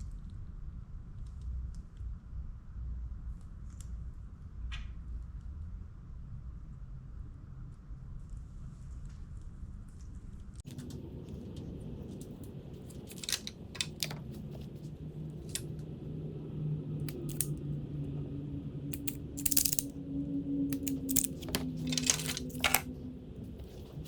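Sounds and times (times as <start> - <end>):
low background hum: 0.0 - 24.0
hands rustling wires: 12.1 - 15.7, 17.1 - 17.5, 19.0 - 19.9, 20.7 - 22.9
tools clicking on wires: 12.2 - 14.4, 17.1 - 17.6, 18.9 - 19.9, 20.7 - 22.9.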